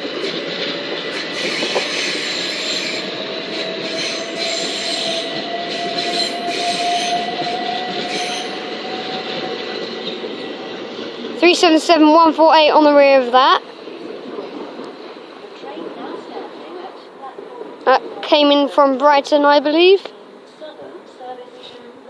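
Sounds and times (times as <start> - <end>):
electric train rumble: 0.0 - 22.0
wheel squeal: 1.2 - 10.6.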